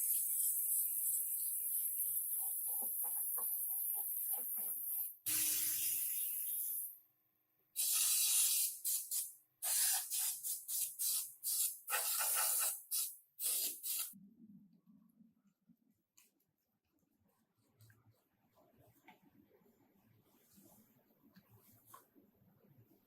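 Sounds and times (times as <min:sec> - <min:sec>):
pneumatic air tool hissing: 0:07.8 - 0:14.1.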